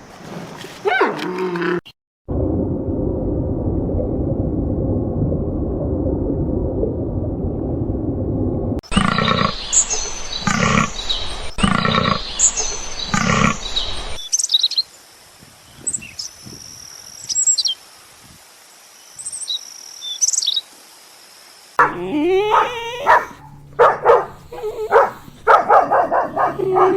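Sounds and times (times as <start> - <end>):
low rumbling noise: 2.3 - 14.2, 21.9 - 26.9
loud animal calls: 21.8 - 26.9
wavering animal calls: 21.8 - 26.9.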